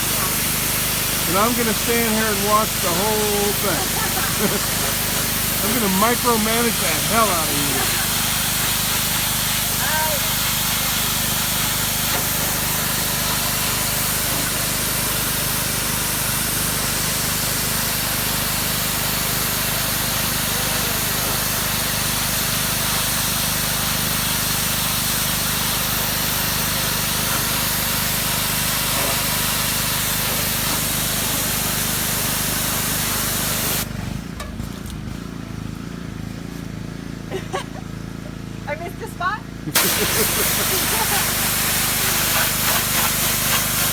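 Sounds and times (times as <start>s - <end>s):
pressure washer spray hissing: 0.0s - 34.0s, 39.7s - 43.9s.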